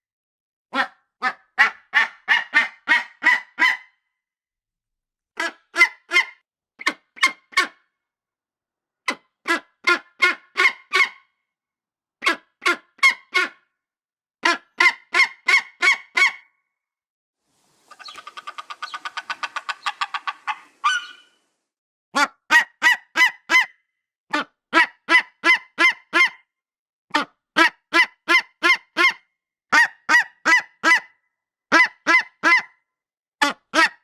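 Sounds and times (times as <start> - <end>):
large bird calling: 17.7 - 21.6
bird chattering run: 17.8 - 21.5.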